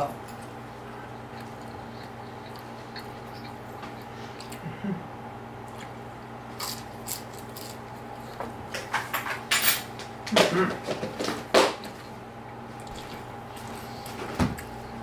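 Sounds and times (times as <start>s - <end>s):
steady electrical hum: 0.0s - 15.0s
faint wet chewing: 0.2s - 4.8s, 5.6s - 8.6s, 11.8s - 14.8s
small mouth clicks: 1.3s - 4.6s.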